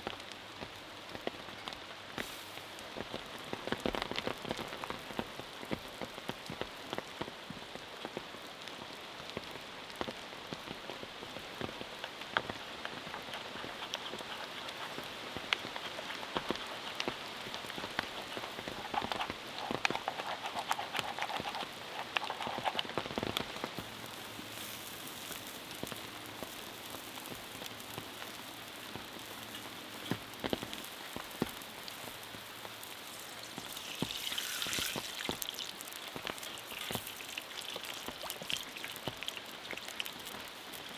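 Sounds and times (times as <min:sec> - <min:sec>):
rain falling: 0:00.0 - 0:20.0, 0:20.6 - 0:40.9
raindrops tapping: 0:09.4 - 0:40.9.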